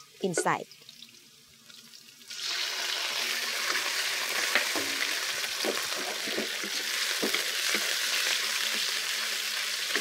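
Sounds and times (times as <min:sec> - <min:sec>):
chicken sizzling in oil: 0:00.0 - 0:10.0
wooden spoon scraping a wok: 0:03.7 - 0:08.8.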